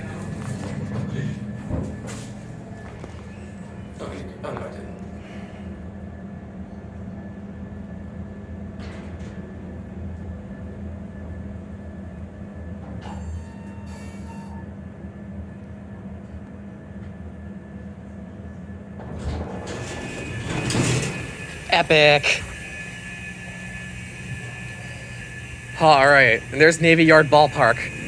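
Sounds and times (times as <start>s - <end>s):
elevator pump motor hum: 0.0s - 28.0s
high squeal: 13.1s - 14.7s, 19.6s - 28.0s.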